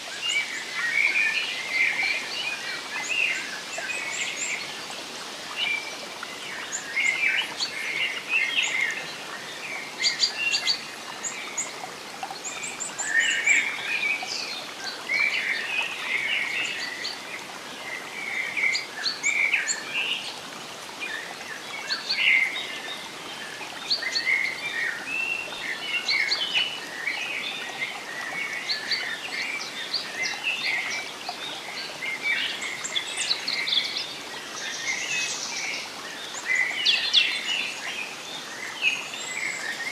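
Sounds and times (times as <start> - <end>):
birds singing and chirping: 5.6 - 20.4.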